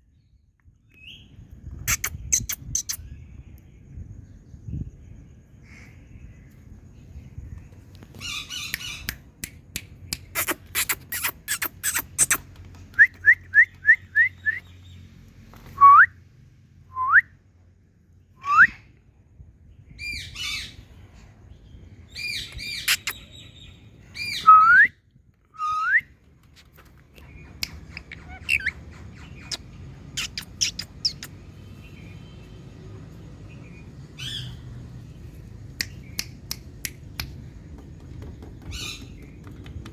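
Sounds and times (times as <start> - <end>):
parrot calling and squawking: 27.2 - 31.3
parrot clicks: 35.7 - 39.9.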